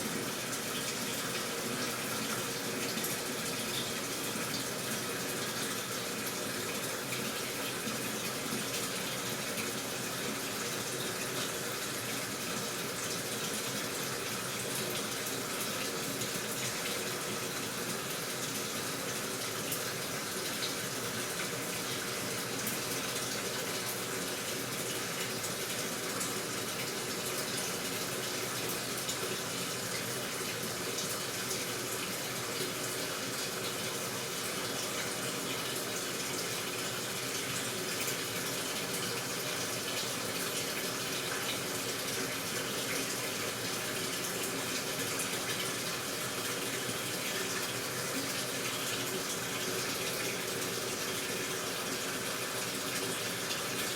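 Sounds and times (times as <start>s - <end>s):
water gushing into washing machine: 0.0s - 53.9s.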